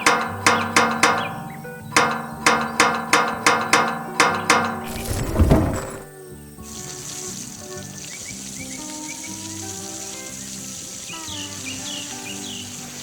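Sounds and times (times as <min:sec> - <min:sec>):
whoosh: 0:04.9 - 0:06.1
steady high hiss: 0:06.2 - 0:13.0.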